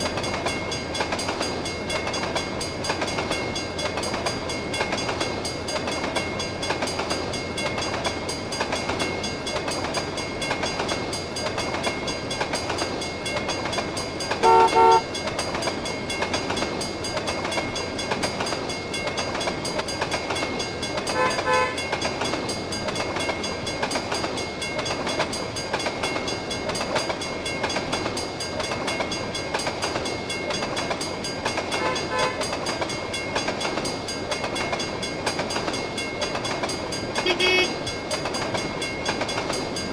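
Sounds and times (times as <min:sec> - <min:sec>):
freight train rumbling past: 0:00.0 - 0:39.9
train horn blasts: 0:14.4 - 0:15.1, 0:21.1 - 0:21.8, 0:31.8 - 0:32.4, 0:37.2 - 0:37.8.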